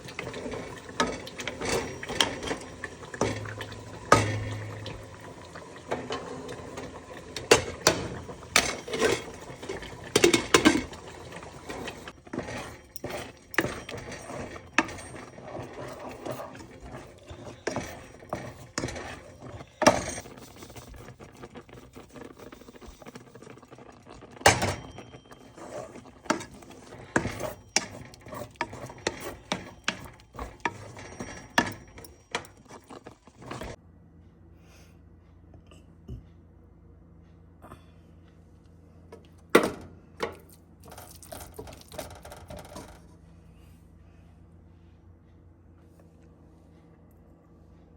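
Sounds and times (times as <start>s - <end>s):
utensils clinking on cookware: 0.0s - 20.8s, 24.4s - 33.8s.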